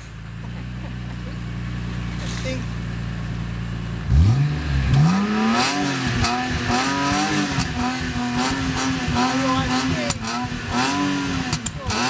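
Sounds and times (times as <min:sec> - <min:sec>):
car engine revving hard: 0:04.0 - 0:12.0.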